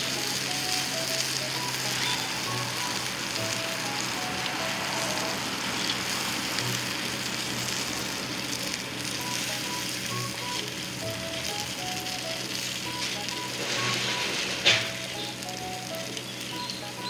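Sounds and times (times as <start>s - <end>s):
simple background melody: 0.0s - 7.8s, 9.0s - 17.0s
meat sizzling on a grill: 0.0s - 17.0s.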